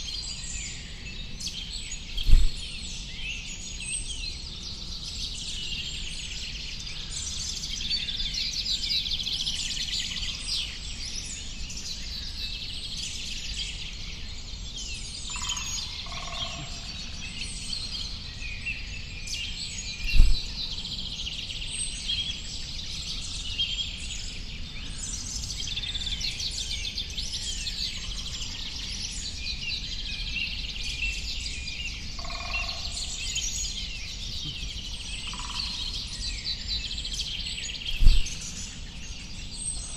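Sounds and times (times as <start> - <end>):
small birds chirping: 0.7 - 39.9
sharp thump: 2.2 - 2.6, 20.1 - 20.5, 38.0 - 38.4.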